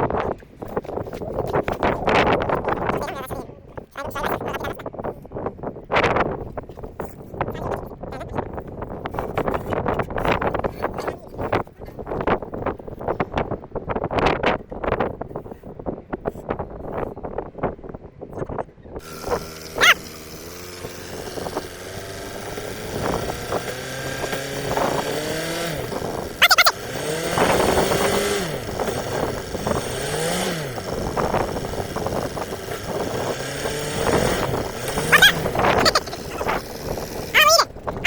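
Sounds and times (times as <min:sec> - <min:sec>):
engine revving: 0:19.0 - 0:38.0.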